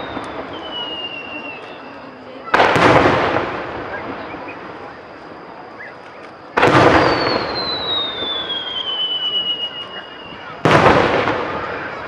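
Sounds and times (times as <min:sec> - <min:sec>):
fireworks bursting with bangs: 0:00.0 - 0:12.0
firework whistle falling in pitch: 0:07.0 - 0:10.6.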